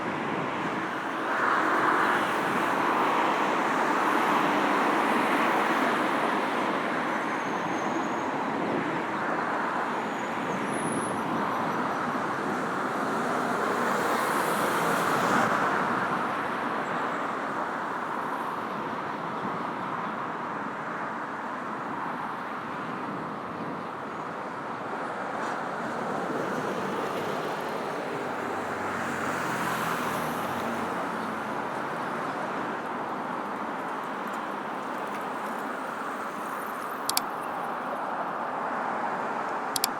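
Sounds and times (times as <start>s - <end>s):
road traffic: 0.0s - 39.9s.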